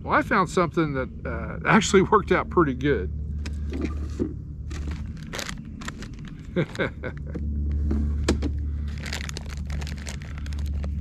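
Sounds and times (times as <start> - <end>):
steady low rumble: 0.0 - 11.0
plastic snack bag crinkling: 4.7 - 6.9, 8.8 - 11.0.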